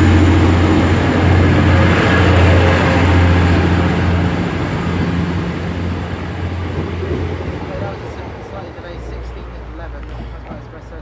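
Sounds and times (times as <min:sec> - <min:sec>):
diesel train engine drone: 0:00.0 - 0:11.0.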